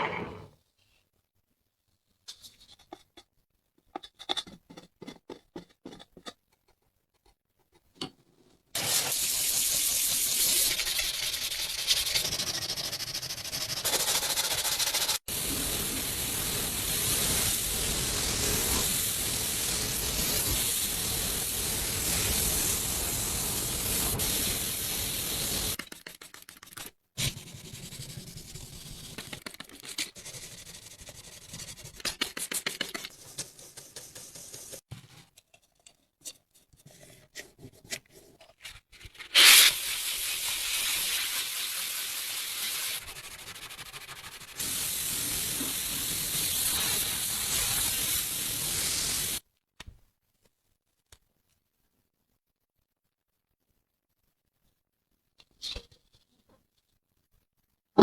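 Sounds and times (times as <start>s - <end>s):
spray hissing: 13.8s - 25.8s, 44.5s - 49.4s
rubbing and scraping: 25.7s - 39.8s.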